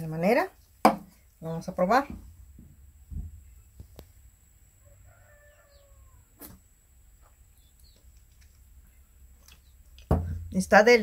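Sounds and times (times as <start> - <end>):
faint distant bird call: 4.8 - 8.2.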